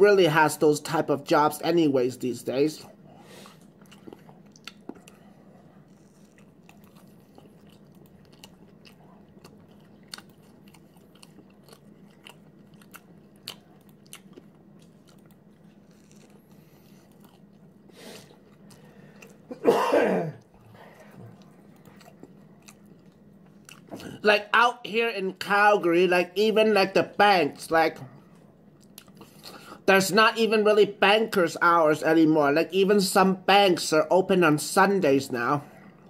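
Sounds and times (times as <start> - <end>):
close-up chewing: 2.9 - 19.5, 20.4 - 24.2, 28.1 - 29.6
mouth clicks and smacks: 3.5 - 5.2.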